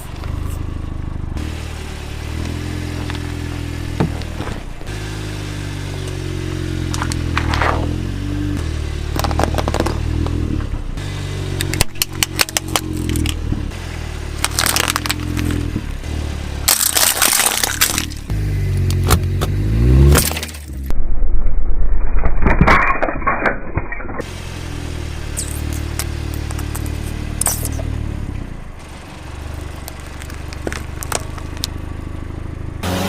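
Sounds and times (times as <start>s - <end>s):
car engine revving: 0.0s - 20.9s, 24.2s - 33.0s
tyre crushing brittle objects: 11.6s - 13.4s, 14.4s - 15.7s, 16.7s - 18.3s, 25.4s - 27.8s, 29.7s - 31.8s.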